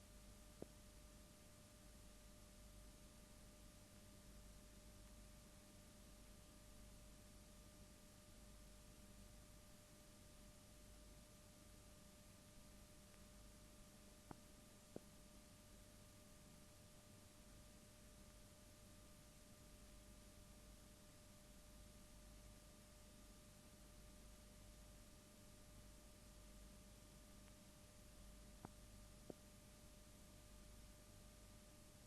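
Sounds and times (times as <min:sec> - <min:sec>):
faint ticks: 0:00.5 - 0:00.8, 0:14.2 - 0:15.2, 0:27.3 - 0:27.7, 0:28.4 - 0:29.5.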